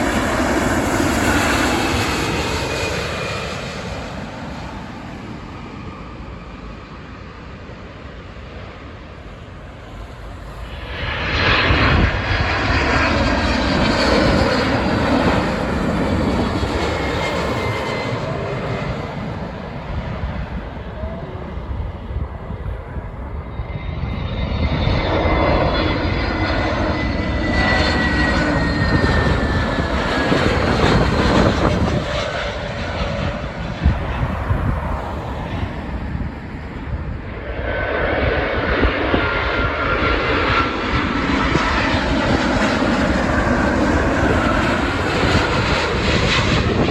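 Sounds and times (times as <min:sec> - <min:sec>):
high whistling fan whine: 0:00.0 - 0:46.9
jet airliners passing low: 0:00.0 - 0:46.9.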